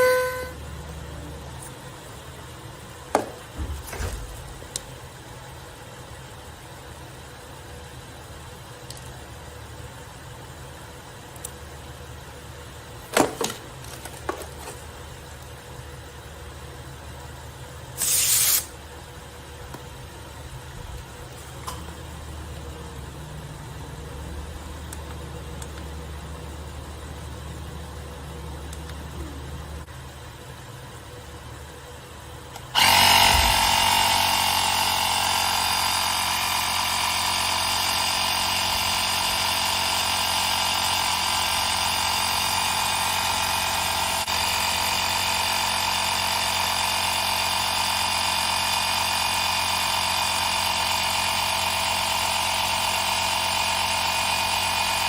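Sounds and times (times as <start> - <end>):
small electric motor whining: 0.0 - 0.6, 32.6 - 55.0.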